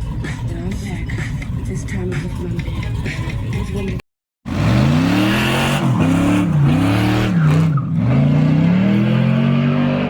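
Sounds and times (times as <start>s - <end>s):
car engine revving: 4.5s - 10.0s.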